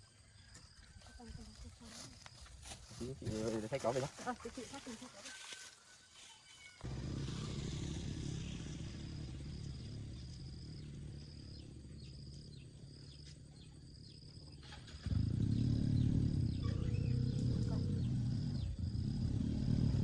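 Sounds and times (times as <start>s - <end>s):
engine running: 6.8s - 20.0s.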